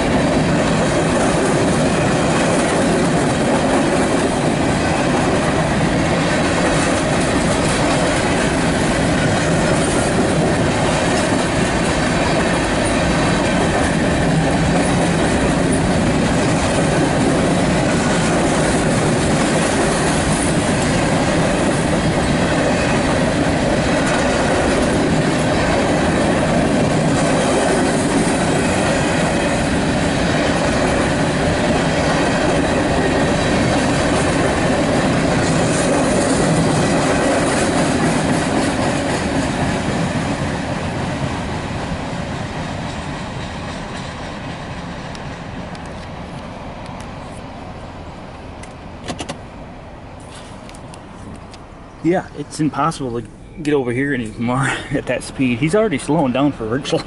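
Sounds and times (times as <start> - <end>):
train wheels clacking over rail joints: 0.0 - 41.2.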